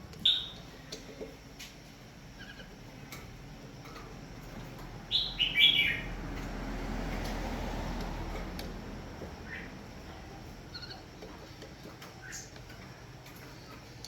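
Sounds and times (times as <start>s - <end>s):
bird chirping: 0.2s - 0.7s, 5.1s - 6.2s, 9.4s - 9.8s, 10.6s - 11.2s, 12.1s - 12.8s.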